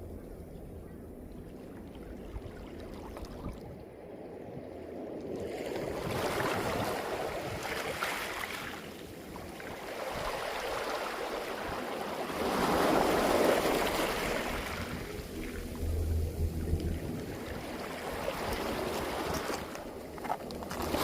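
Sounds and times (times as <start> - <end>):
sea waves on pebble beach: 5.6 - 15.8, 17.0 - 21.0.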